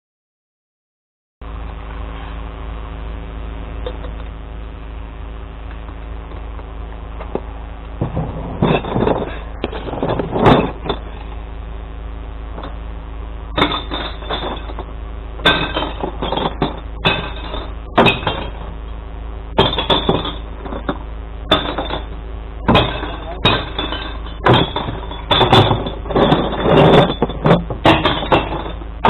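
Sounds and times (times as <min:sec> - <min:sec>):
truck engine humming: 0:01.5 - 0:29.0
glass bottles crashing into truck: 0:08.0 - 0:11.1, 0:13.6 - 0:18.7, 0:19.6 - 0:29.0.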